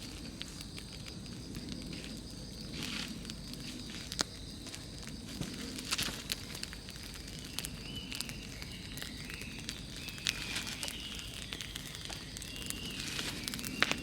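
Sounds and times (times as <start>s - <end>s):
bonfire crackling and popping: 0.0s - 14.0s
faint high whistling tones: 7.5s - 14.0s.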